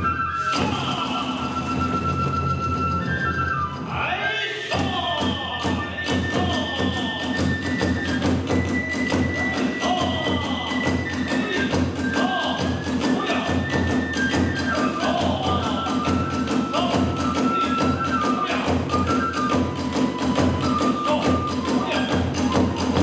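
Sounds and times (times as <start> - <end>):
bamboo flute: 0.0 - 23.0
rapid drum beats: 4.7 - 23.0.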